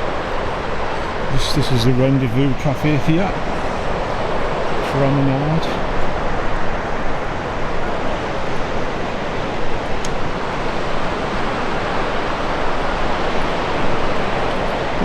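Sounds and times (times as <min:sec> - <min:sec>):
sea surf breaking: 0:00.0 - 0:15.0
wind: 0:00.0 - 0:15.0.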